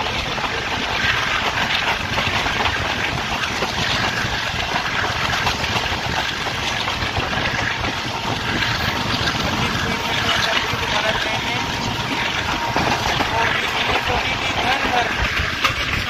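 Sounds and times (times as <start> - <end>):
passenger train running: 0.0 - 16.0.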